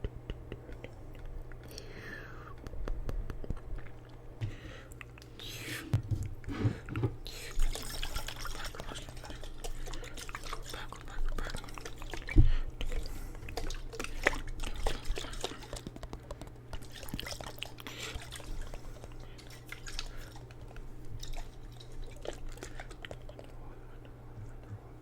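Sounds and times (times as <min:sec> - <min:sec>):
steady low hum: 0:00.0 - 0:25.0
water sloshing in a jar: 0:06.6 - 0:23.3.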